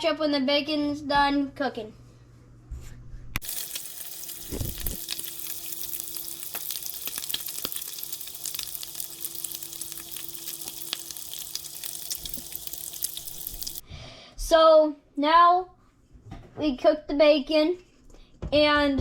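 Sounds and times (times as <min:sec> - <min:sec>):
bacon sizzling in a pan: 0:03.4 - 0:13.8.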